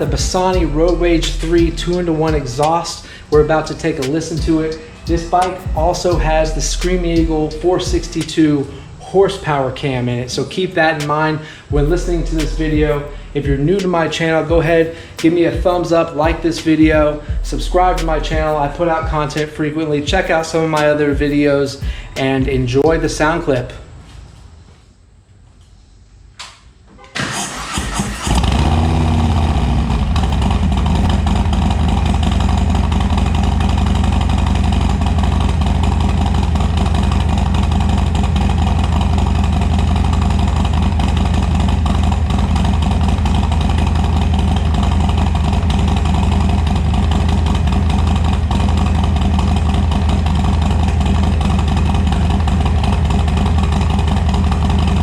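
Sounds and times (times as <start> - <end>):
motorcycle engine idling: 0.0 - 9.0, 11.4 - 23.6, 28.2 - 55.0
motorcycle starter cranking: 27.2 - 55.0.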